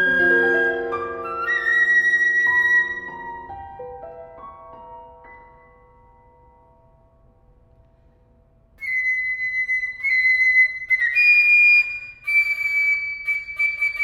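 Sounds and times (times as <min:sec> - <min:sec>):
flute playing high held notes: 0:00.0 - 0:03.4, 0:08.8 - 0:14.0
piano chord: 0:00.0 - 0:08.4.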